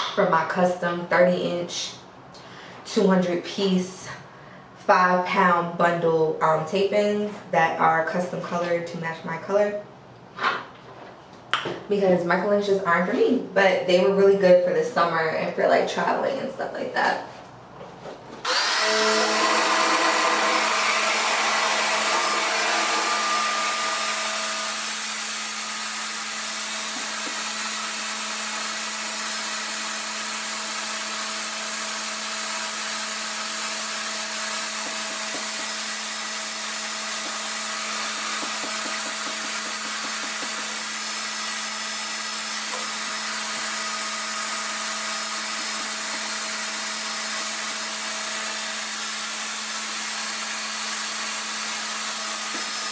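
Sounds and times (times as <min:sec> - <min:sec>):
hair dryer running: 0:18.5 - 0:52.9.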